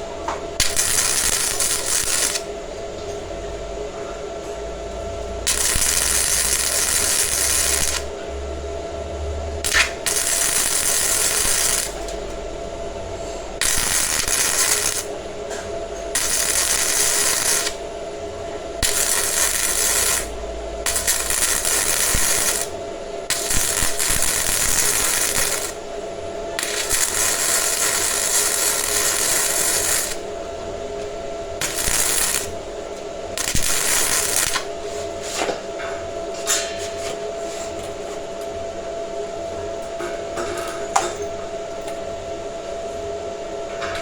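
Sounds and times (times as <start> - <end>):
power tool cutting steel: 0.6 - 2.4, 5.5 - 8.1, 9.6 - 12.0, 13.6 - 15.1, 16.2 - 17.8, 18.8 - 25.8, 26.6 - 30.2, 31.6 - 32.5, 33.4 - 34.6.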